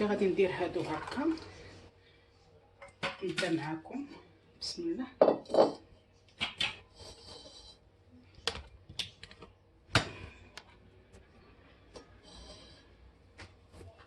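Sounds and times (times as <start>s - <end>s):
kitchen bowls and utensils clinking: 5.2s - 5.8s.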